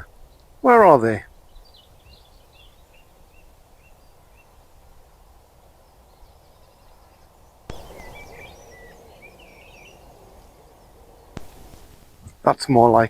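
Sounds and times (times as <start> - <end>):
microphone hiss: 0.0 - 13.0
small birds chirping: 0.0 - 13.0
sharp click: 11.4 - 12.4.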